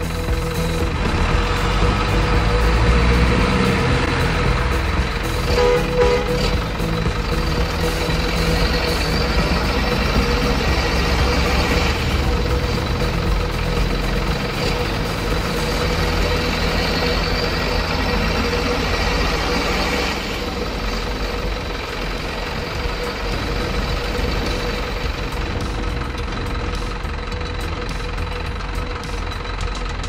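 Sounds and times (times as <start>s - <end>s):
constant whine: 0.0s - 30.0s
truck engine running: 0.0s - 30.0s.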